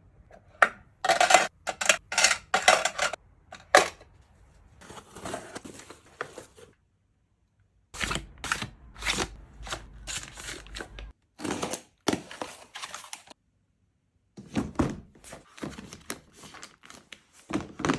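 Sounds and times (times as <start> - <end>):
household items clicking and knocking: 0.6 - 4.1.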